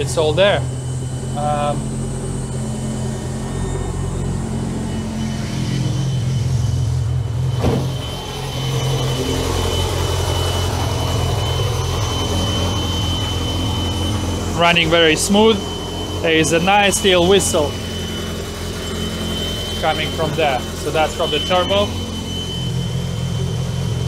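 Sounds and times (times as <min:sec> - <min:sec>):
race car engine idling: 0:00.0 - 0:24.0
turbo whistle: 0:00.7 - 0:24.0.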